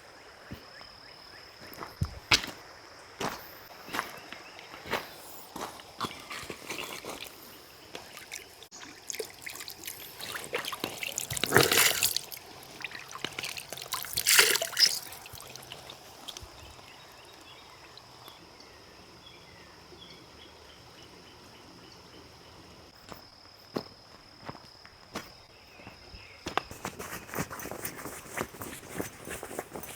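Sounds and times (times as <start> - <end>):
water pouring and splashing: 6.2 - 18.4.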